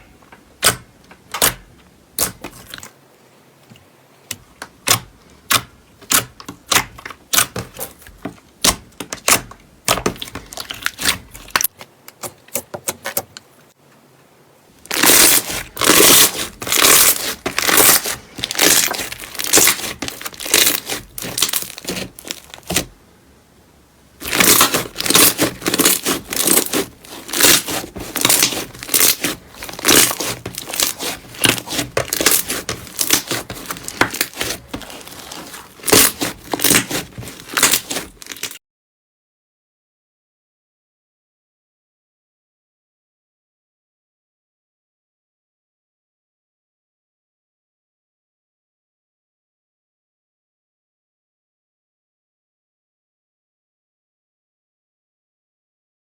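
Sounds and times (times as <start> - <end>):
slime crackling and crunching: 4.8 - 11.7, 14.8 - 22.9, 24.2 - 38.6.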